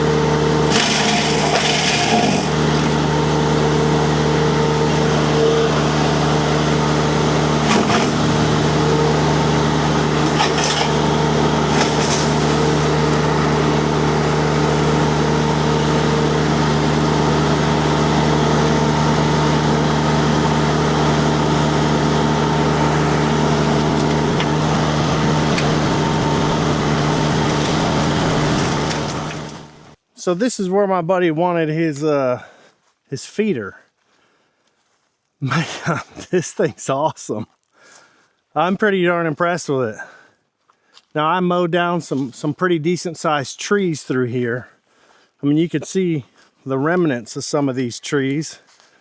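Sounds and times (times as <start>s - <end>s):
diesel engine and hydraulics droning: 0.0s - 30.0s.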